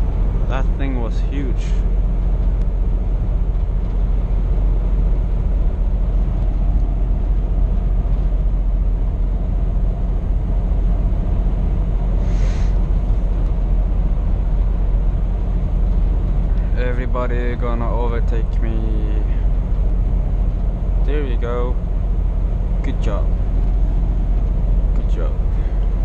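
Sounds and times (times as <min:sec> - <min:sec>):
road rumble: 0:00.0 - 0:26.0
truck engine drone: 0:00.0 - 0:26.0
short air hiss: 0:12.2 - 0:12.8.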